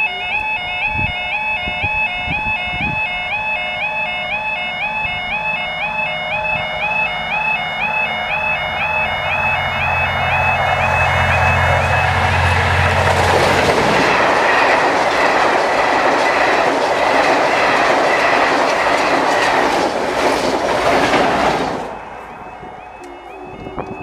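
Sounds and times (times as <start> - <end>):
level crossing alarm warbling: 0.0 - 16.7, 21.9 - 24.0
diesel locomotive engine drone: 0.0 - 24.0
train wheels clickety-clack: 10.4 - 22.0.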